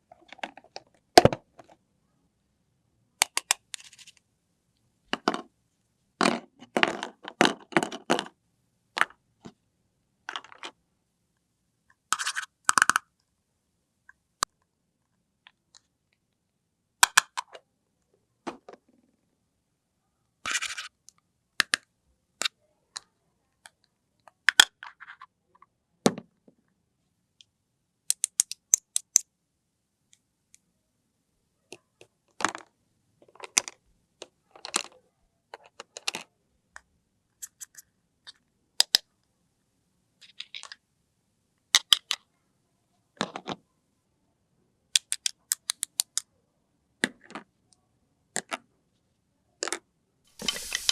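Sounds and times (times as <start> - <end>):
toy pieces clicking and tapping: 12.2 - 13.0, 28.1 - 29.2, 45.0 - 46.2, 50.4 - 50.9.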